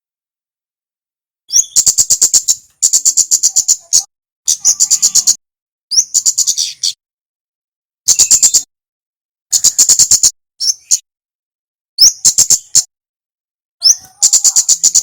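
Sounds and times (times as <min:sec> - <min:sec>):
bird chipping rapidly: 0:01.5 - 0:07.0, 0:08.1 - 0:08.7, 0:09.5 - 0:11.0, 0:12.0 - 0:12.9, 0:13.8 - 0:15.0.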